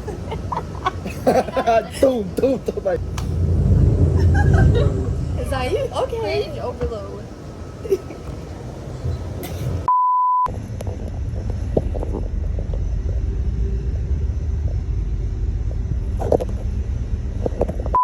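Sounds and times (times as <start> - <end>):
train rumbling: 0.0 - 9.9, 10.5 - 18.0.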